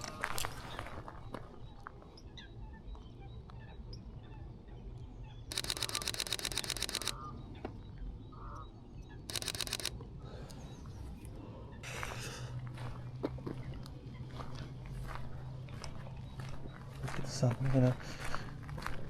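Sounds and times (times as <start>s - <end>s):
faint bird calls: 0.0s - 12.5s
camera shutter burst: 5.5s - 7.2s, 9.3s - 10.0s.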